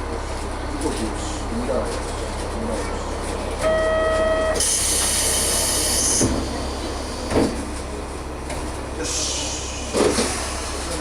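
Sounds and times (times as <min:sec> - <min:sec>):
diesel railcar idling: 0:00.0 - 0:11.0
electronic buzzer tone: 0:03.6 - 0:04.6.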